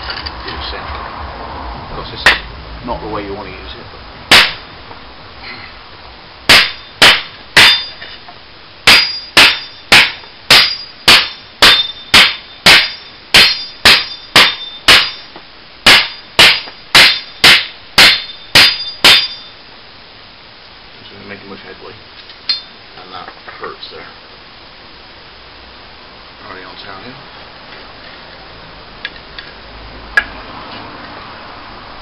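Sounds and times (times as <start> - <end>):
machete chopping wood: 4.3 - 4.6, 6.5 - 7.9, 8.9 - 15.2, 15.9 - 19.3
blade ringing: 6.5 - 8.2, 8.9 - 19.6.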